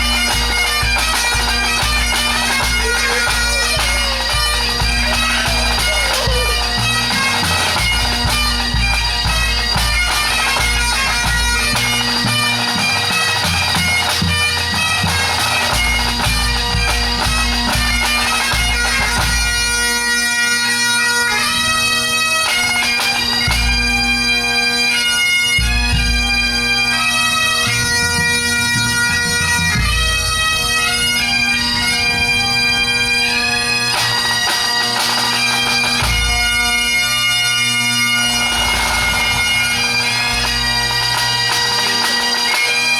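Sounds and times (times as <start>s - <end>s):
bass and tenor drumming: 0.0s - 19.7s, 36.0s - 41.7s
bagpipes playing: 0.0s - 42.9s.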